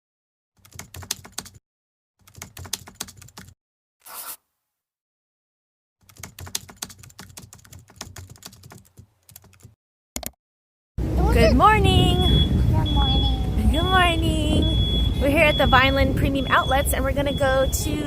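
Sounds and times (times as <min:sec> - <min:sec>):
rapid clicking and tapping: 0:02.3 - 0:03.5, 0:06.1 - 0:10.3.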